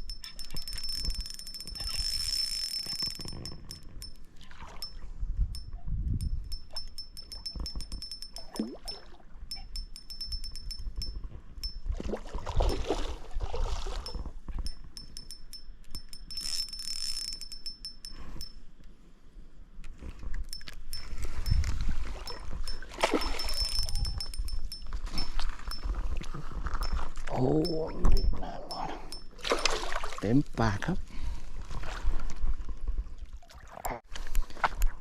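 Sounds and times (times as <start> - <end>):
fishing reel clicking: 0.0 - 5.0, 5.6 - 11.8, 14.0 - 18.6, 20.4 - 25.9, 26.8 - 29.7.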